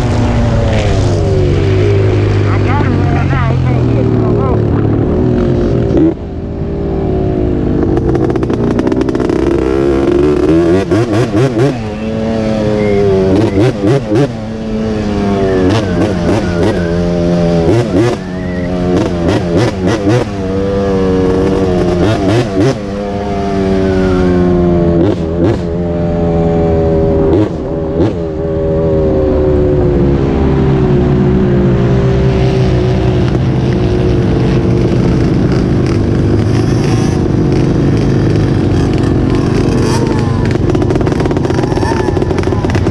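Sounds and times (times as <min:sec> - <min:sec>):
small off-road engine revving: 0:06.8 - 0:28.2, 0:32.2 - 0:42.9.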